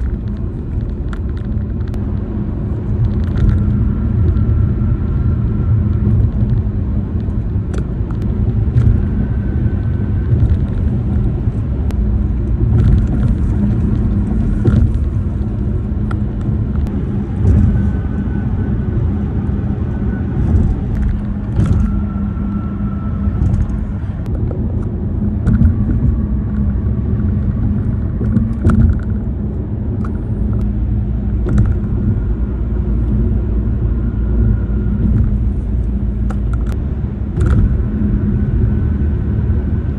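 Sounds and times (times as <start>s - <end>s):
car tyres rumbling on road: 0.0s - 39.9s
plastic interior clicks and rattles: 28.2s - 29.2s.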